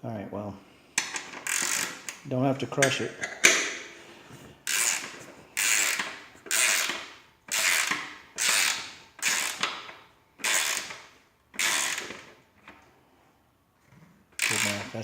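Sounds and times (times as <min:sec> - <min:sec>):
ratchet wrench clicking: 0:01.0 - 0:02.2, 0:04.6 - 0:12.3, 0:14.4 - 0:15.0.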